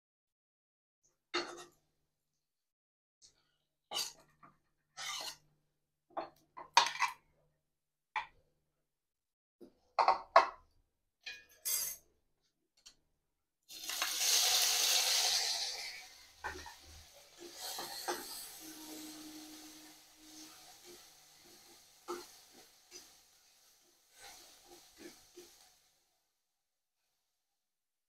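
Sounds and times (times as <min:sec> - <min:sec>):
metal spatula clinking and scraping: 0:05.0 - 0:05.4, 0:16.4 - 0:23.1
shrimp sizzling in hot oil: 0:13.7 - 0:26.4.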